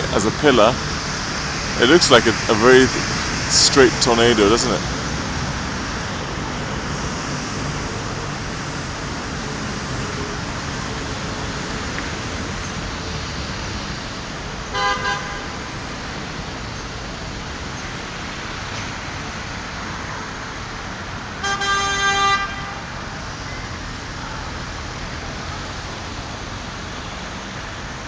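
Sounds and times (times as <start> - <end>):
city traffic noise: 0.0 - 28.0
vehicle horn tooting: 14.7 - 15.7, 21.4 - 22.9.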